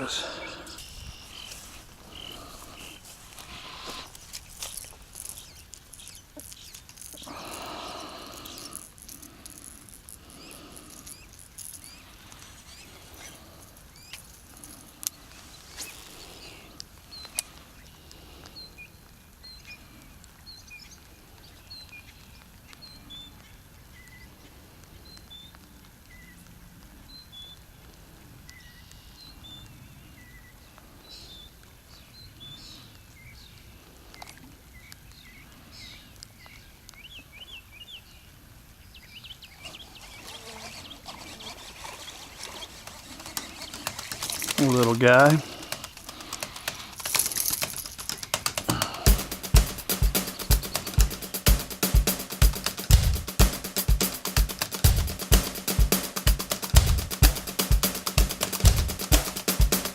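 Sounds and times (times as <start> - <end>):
birds chirping: 0.0 - 24.3, 32.1 - 59.9
pond-side ambience: 0.0 - 26.1, 38.3 - 52.8
sharp clicks: 41.1 - 59.9.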